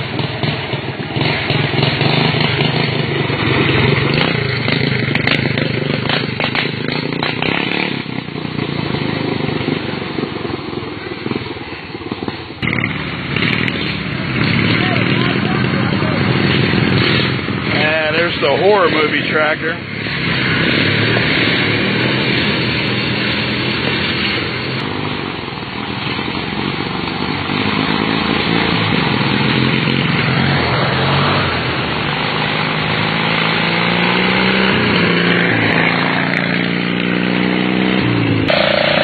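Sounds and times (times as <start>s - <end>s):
lawn tractor engines racing: 0.0s - 39.0s.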